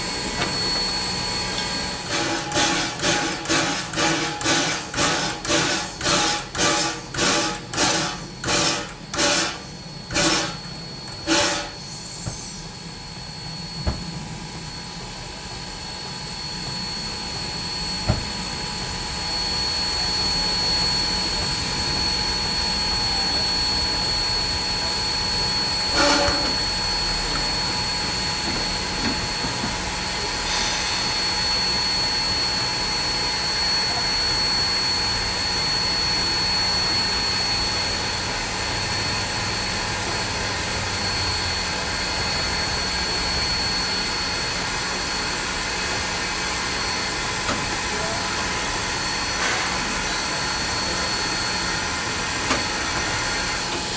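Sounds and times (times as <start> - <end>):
steam hissing: 0.0 - 13.4, 17.6 - 53.9
steam locomotive chuffing: 0.0 - 53.9
thin high whine: 16.1 - 28.6.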